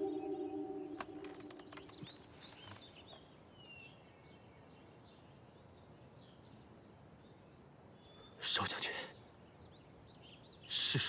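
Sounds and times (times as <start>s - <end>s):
background music: 0.0s - 1.7s
faint bird chirps: 0.0s - 4.8s.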